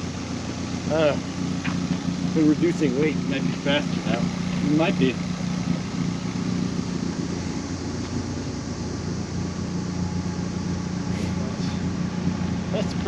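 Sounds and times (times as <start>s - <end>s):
road noise: 0.0s - 13.0s
truck engine humming: 0.0s - 13.0s.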